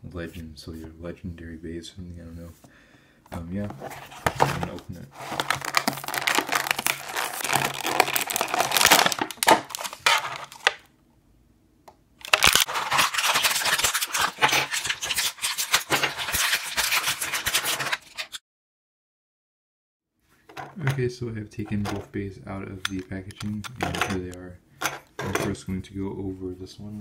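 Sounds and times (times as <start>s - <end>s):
packaging being torn and crinkled: 5.1s - 10.8s, 12.2s - 18.4s
plastic clicks and snaps: 22.8s - 24.4s.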